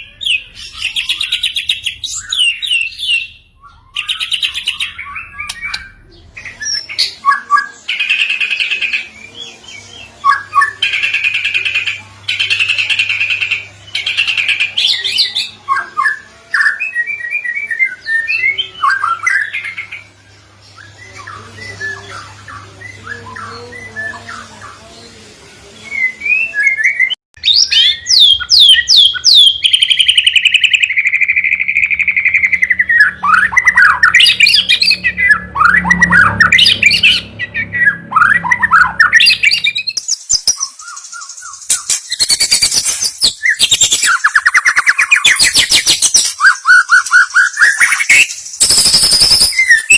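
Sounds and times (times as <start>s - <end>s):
bird whistled notes: 26.1s - 49.9s
bird buzzy rattling song: 27.5s - 49.9s.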